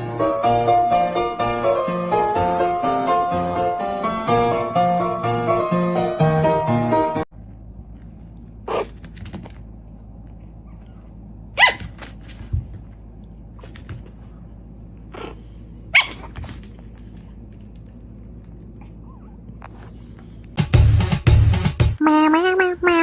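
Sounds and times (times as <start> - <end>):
low hum: 7.4 - 21.4.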